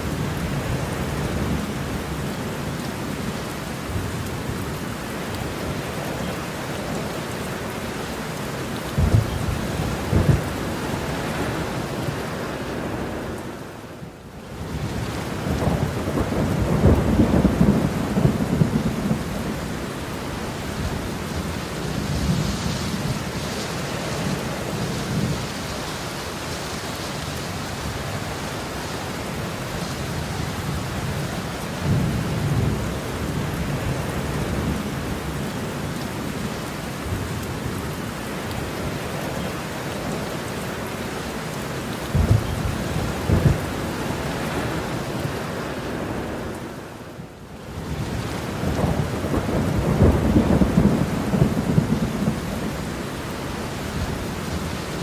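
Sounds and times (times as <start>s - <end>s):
heavy rain falling: 0.0s - 55.0s
thunder rumbling: 8.9s - 12.2s, 14.9s - 23.4s, 42.0s - 46.3s, 47.8s - 55.0s.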